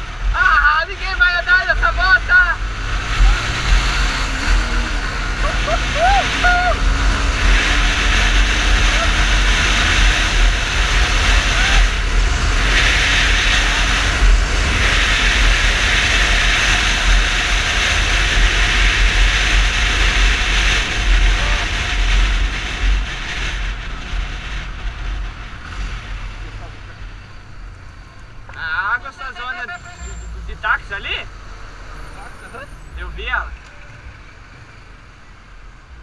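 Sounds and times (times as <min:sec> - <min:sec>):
wind and road rush: 0:00.0 - 0:36.0
motorcycle engine rumble: 0:02.0 - 0:29.2.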